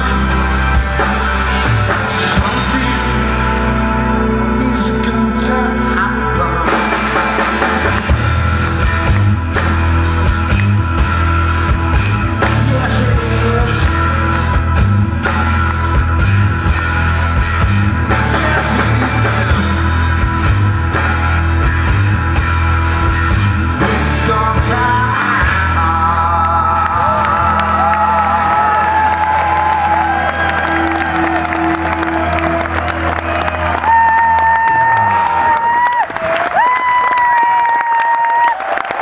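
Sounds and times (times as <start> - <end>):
live rock band playing: 0.0 - 38.5
drums steady beat: 6.7 - 26.2.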